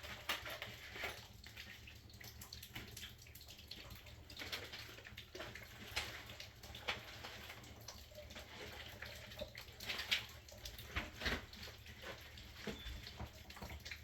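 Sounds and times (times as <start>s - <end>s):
water running and splashing: 0.0s - 14.0s
knocks and clatter of handling: 5.4s - 14.0s.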